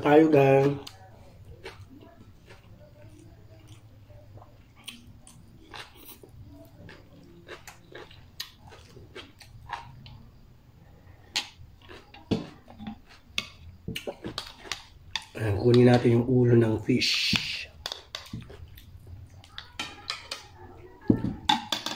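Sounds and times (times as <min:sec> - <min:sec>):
chewing and lip smacking: 0:00.7 - 0:10.4, 0:11.0 - 0:15.4, 0:17.8 - 0:20.6.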